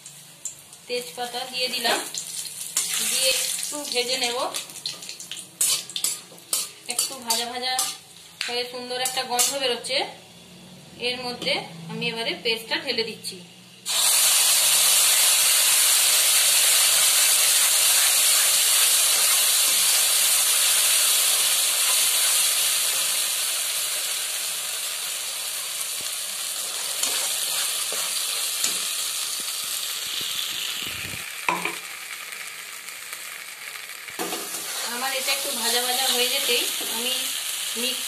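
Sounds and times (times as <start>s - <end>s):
paste sizzling in hot oil: 0.0s - 8.4s, 13.8s - 38.0s
steel spatula scraping pan: 5.6s - 8.0s, 26.6s - 28.9s, 34.5s - 35.2s.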